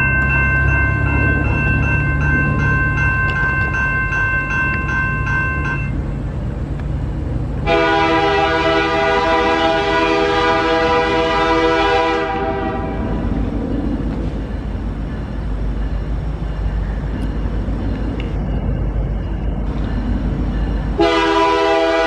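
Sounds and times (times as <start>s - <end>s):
high-pitched ringing with ticks: 0.0s - 7.4s, 13.6s - 21.0s
train rumbling past: 0.0s - 22.0s
locomotive horn blast: 7.6s - 13.2s, 21.0s - 22.0s.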